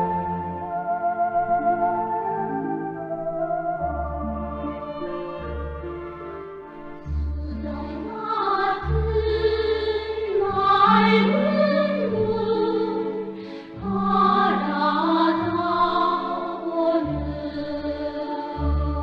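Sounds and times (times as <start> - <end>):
choir singing held notes: 7.6 - 19.0.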